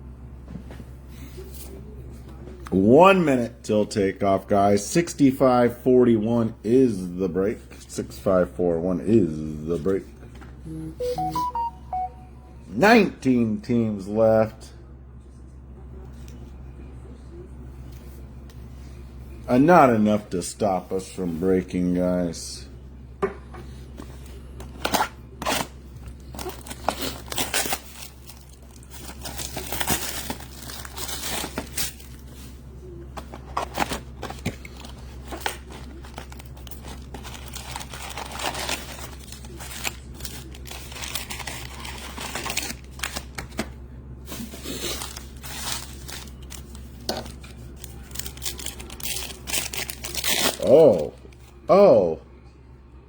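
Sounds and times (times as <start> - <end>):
crinkling plastic and foil wrappers: 24.6 - 43.6, 44.3 - 51.5
wrappers tearing: 24.7 - 32.4, 33.3 - 43.5, 44.4 - 51.5.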